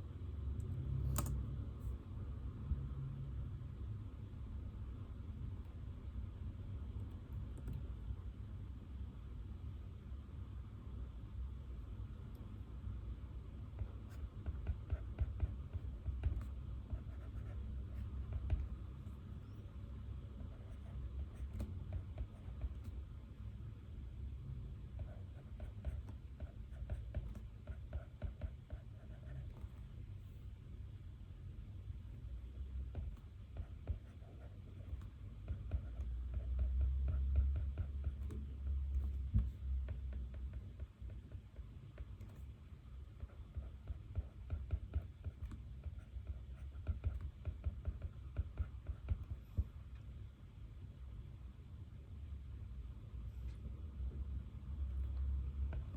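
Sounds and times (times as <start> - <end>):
low room hum: 0.0 - 55.9
pen writing on paper: 13.7 - 19.7, 20.4 - 23.0, 24.9 - 29.9, 32.9 - 49.7.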